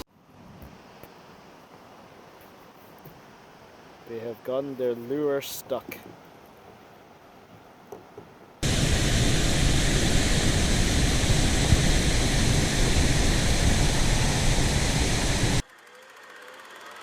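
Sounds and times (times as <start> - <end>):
rushing noise with low rumble: 8.6 - 15.6.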